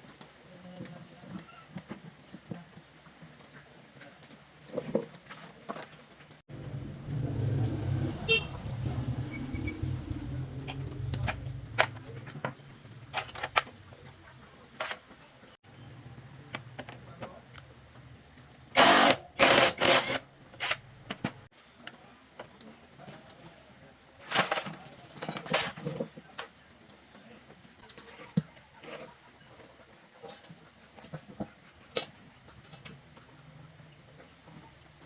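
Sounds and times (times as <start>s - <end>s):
engine running with low hum: 6.5s - 14.1s
clicks and knocks: 10.6s - 14.2s.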